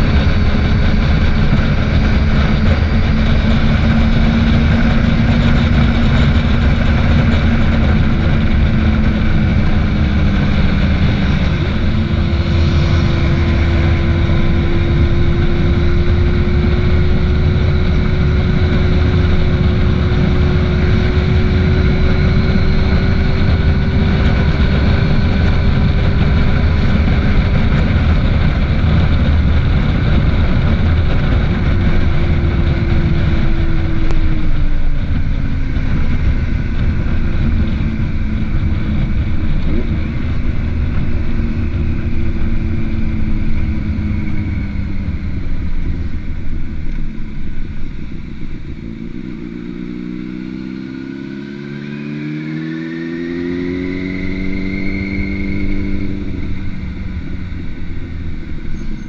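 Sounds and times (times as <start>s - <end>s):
motorcycle engine at highway speed: 0.0s - 59.0s
wind on microphone: 0.0s - 59.0s.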